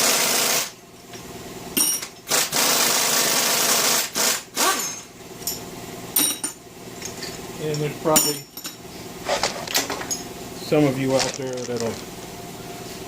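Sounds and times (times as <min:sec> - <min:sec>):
pneumatic air tool spinning: 0:00.0 - 0:00.8, 0:02.3 - 0:05.1.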